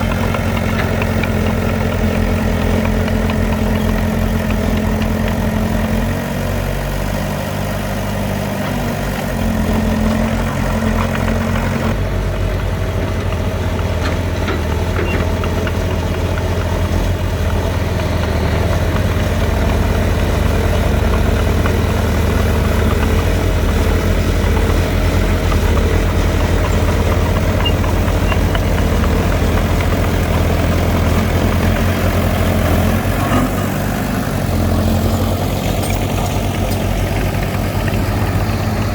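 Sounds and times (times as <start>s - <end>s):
diesel engine of heavy machinery: 0.0s - 38.9s.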